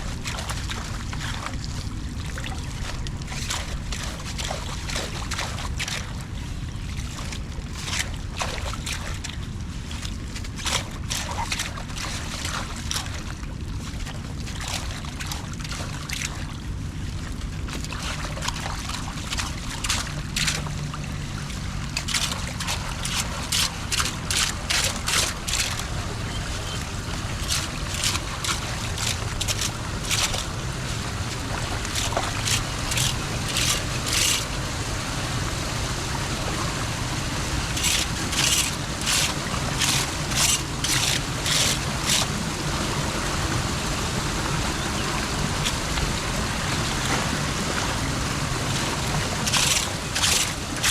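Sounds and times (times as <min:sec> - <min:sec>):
floodwater draining through drain: 0:00.0 - 0:50.9
sharp water splashing: 0:00.0 - 0:50.9.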